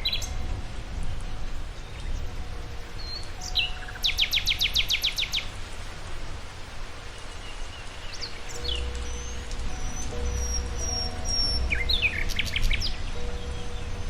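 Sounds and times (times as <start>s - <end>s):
bird chirps: 3.0s - 5.5s, 7.6s - 14.0s
songbird singing falling notes: 7.6s - 14.0s
low outdoor rumble: 8.5s - 14.0s.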